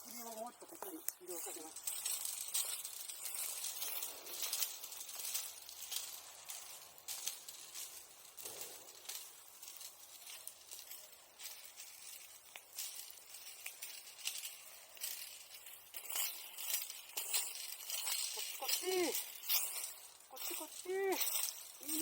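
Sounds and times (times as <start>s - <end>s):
embers crackling and hissing: 0.0s - 22.0s.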